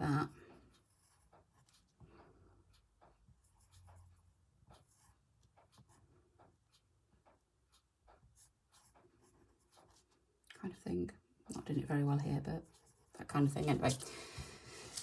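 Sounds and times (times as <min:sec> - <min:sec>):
drawing on paper by hand: 0:00.0 - 0:15.0
small ticks and rustles: 0:00.4 - 0:11.6.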